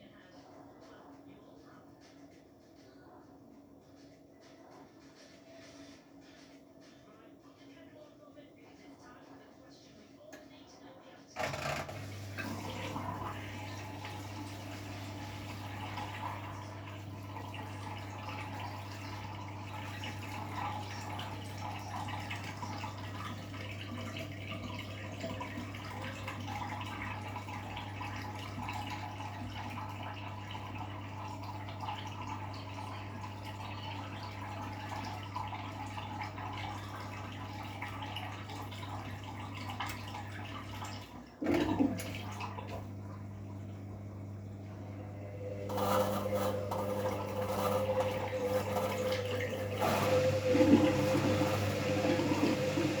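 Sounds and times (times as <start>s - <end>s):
water rushing into washing machine: 11.4s - 53.0s.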